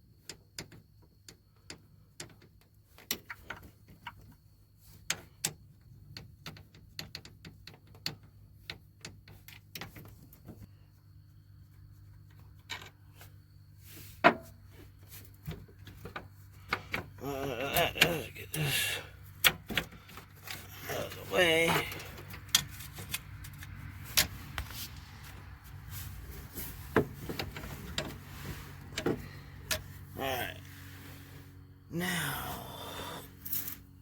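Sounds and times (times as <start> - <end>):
hand tools tapping on metal: 15.9 - 24.7, 26.6 - 30.5.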